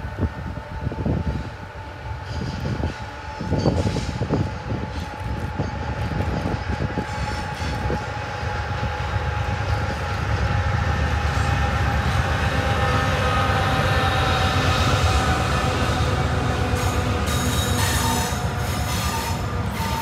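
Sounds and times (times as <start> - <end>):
train rumbling past: 0.0 - 20.0.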